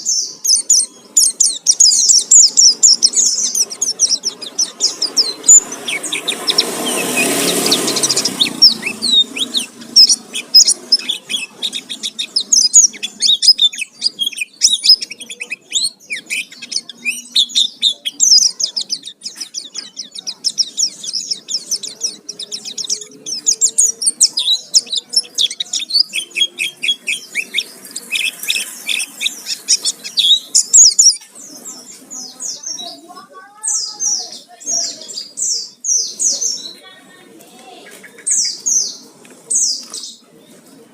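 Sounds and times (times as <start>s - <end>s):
bird singing chirps and trills: 0.0s - 40.7s
loud rush of noise: 4.4s - 11.4s.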